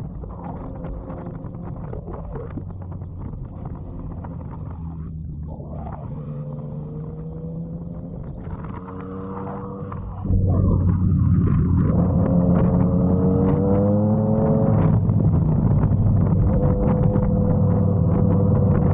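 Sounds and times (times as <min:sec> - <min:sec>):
motorcycle engine at low revs: 0:00.0 - 0:18.9
faint rising tone: 0:04.0 - 0:14.2.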